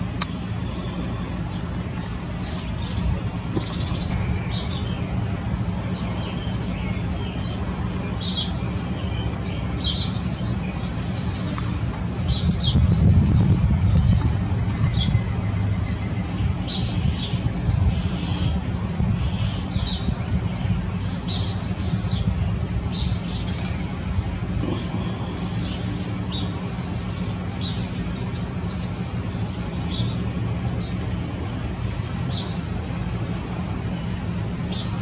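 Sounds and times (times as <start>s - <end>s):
small birds chirping: 0.0s - 35.0s
low rumble: 9.8s - 29.2s.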